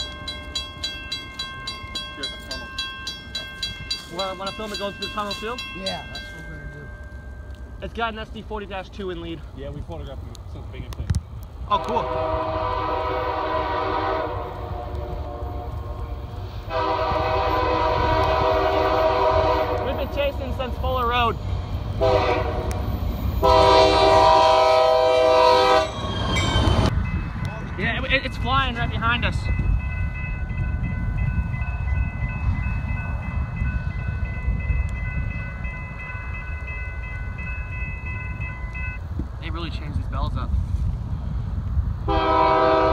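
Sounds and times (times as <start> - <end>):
passing train rumble: 0.0 - 42.9
locomotive air horn chord: 11.8 - 16.1, 16.7 - 20.0, 22.0 - 22.8, 23.4 - 26.0, 42.1 - 42.9.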